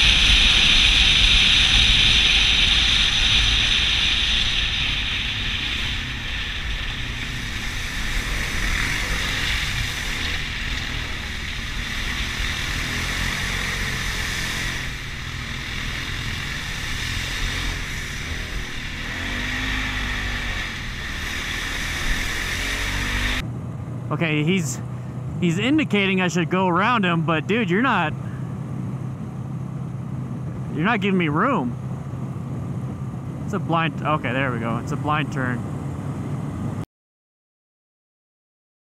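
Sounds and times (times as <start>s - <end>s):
motorcycle engine running: 0.0s - 36.8s.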